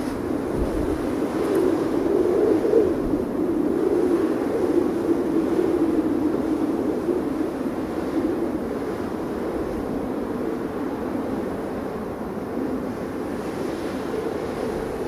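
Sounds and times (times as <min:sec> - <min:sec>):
wind howling: 0:00.0 - 0:11.6.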